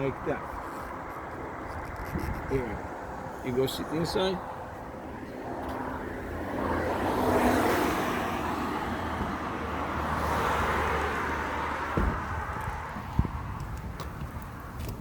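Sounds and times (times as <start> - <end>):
vehicle traffic noise: 0.0 - 15.0
short thump: 11.9 - 12.4.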